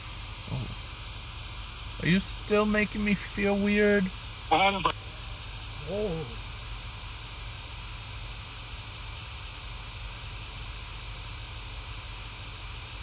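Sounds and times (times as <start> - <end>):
steady hiss: 0.0 - 13.0
brief voice: 3.1 - 4.9, 5.8 - 6.4.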